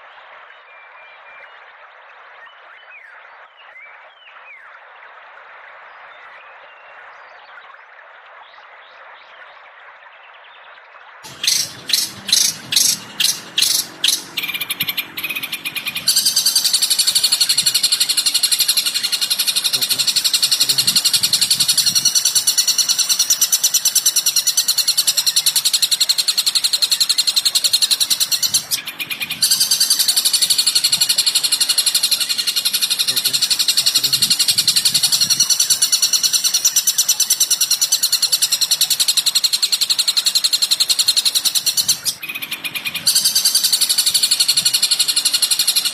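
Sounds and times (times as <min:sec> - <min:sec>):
high-pitched bird trill: 0:11.3 - 0:45.9.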